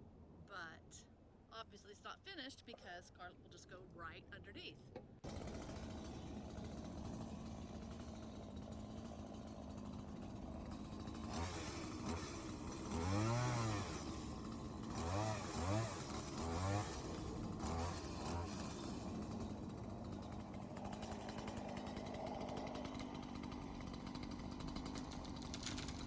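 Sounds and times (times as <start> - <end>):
engine revving: 10.9 - 24.8.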